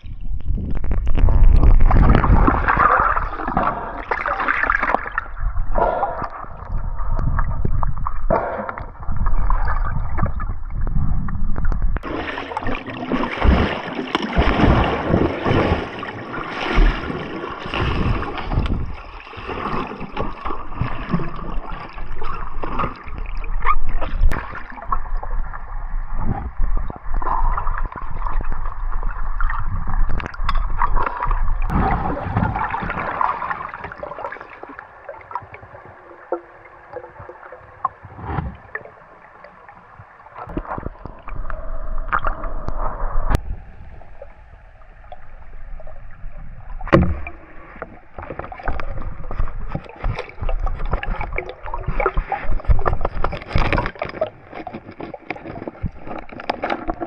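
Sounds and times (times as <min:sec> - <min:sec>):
water splashing and gurgling: 0:00.0 - 0:57.0.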